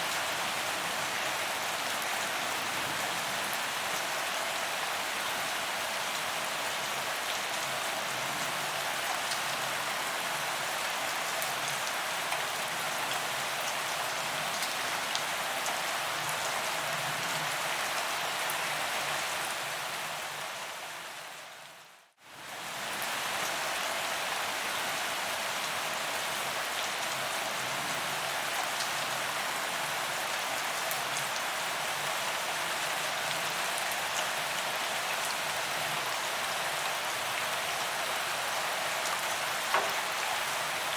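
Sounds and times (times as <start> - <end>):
rain on paved ground: 0.0 - 40.9.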